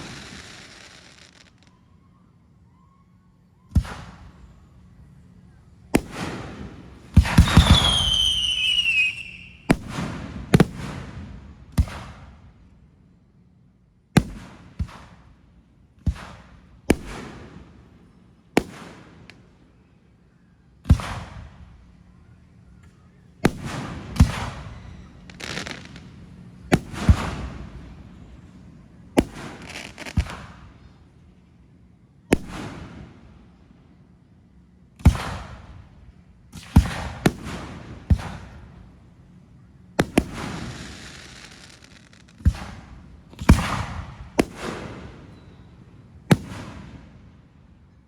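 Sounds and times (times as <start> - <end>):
fireworks bangs echoing: 0.0 - 1.7, 3.7 - 4.5, 5.9 - 12.4, 14.2 - 15.3, 16.0 - 17.9, 18.6 - 19.4, 20.8 - 21.8, 23.4 - 31.0, 32.3 - 33.4, 35.0 - 39.1, 40.0 - 47.2
fireworks crackling: 0.0 - 1.8, 6.0 - 11.2, 23.5 - 28.3, 29.2 - 30.7, 40.0 - 45.3
whistle falling in pitch: 7.4 - 9.7.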